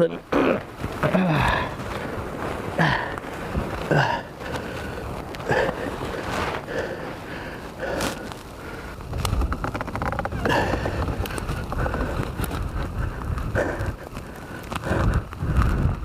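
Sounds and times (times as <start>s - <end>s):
wind buffeting microphone: 0.0s - 16.0s
footsteps crunching through snow: 0.5s - 9.6s.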